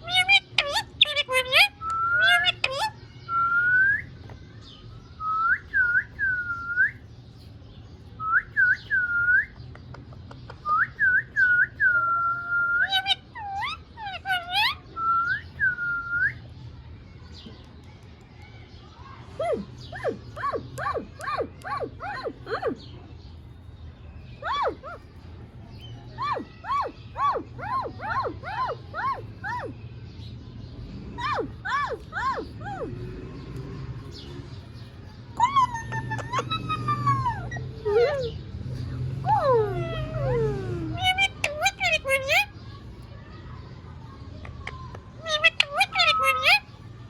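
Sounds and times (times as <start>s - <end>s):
parrot warbling calls: 0.0s - 3.0s, 12.8s - 14.8s, 19.4s - 22.8s, 24.4s - 25.1s, 26.2s - 29.8s, 35.4s - 38.5s, 39.2s - 42.6s, 45.2s - 46.7s.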